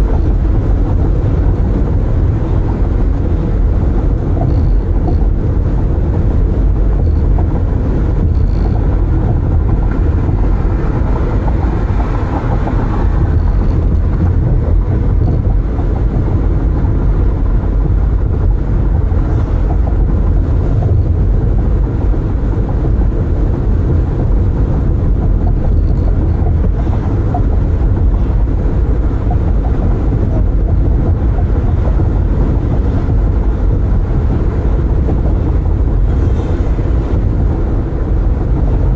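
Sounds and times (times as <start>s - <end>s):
wind rumble in car cabin: 0.0s - 38.9s
tyre rumble: 4.0s - 17.2s.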